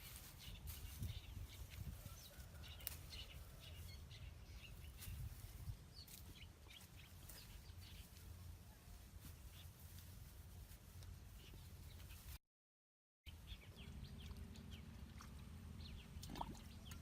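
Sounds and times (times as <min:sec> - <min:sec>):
low steady rumble: 0:13.4 - 0:17.0.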